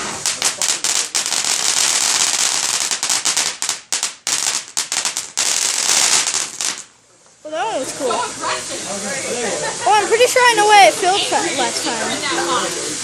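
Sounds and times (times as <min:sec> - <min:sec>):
firework crackling pops: 0:00.0 - 0:07.5.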